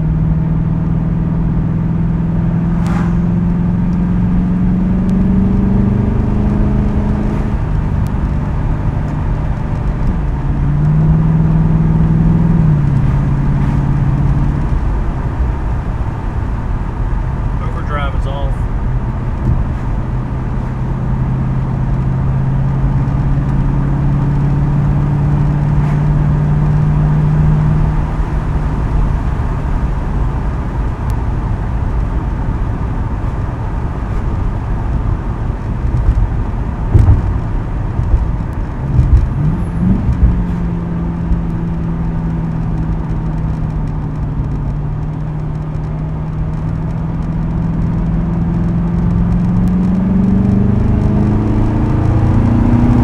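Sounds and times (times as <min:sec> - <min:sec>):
car engine drone: 0:00.0 - 0:53.0
loud thumps: 0:02.5 - 0:42.4.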